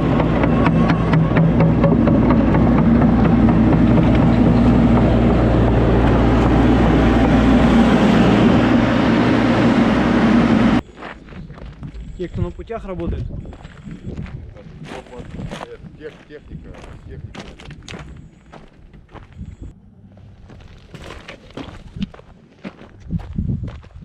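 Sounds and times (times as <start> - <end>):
machinery clanking: 0.0 - 10.9
heavy diesel machinery running: 0.0 - 11.2.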